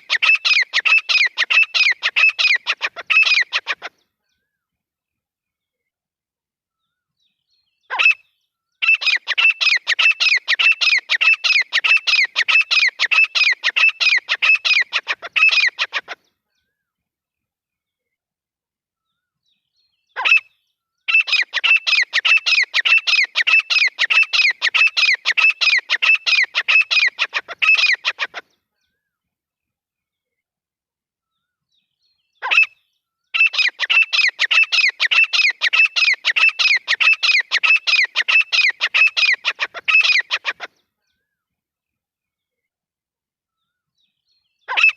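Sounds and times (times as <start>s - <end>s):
francolin calling: 0.0s - 3.8s, 8.8s - 16.2s, 21.1s - 28.4s, 33.4s - 40.7s.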